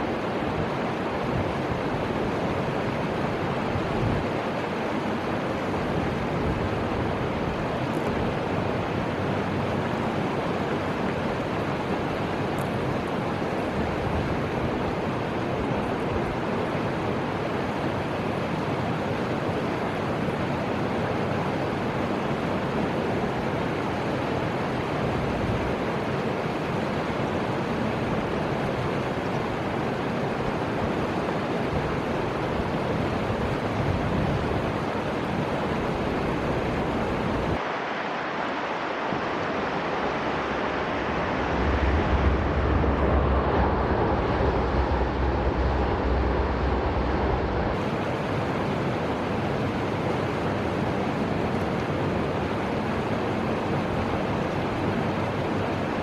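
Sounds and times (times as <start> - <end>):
river water rushing: 0.0 - 56.0
wind on microphone: 0.0 - 56.0
deep low rumble: 41.0 - 47.8.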